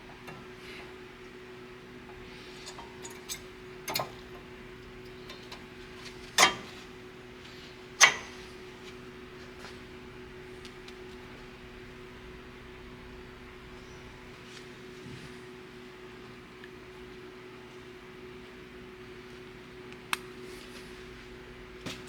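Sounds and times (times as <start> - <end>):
steady low hum: 0.0 - 22.0
metal tools clinking and knocking: 2.5 - 4.5.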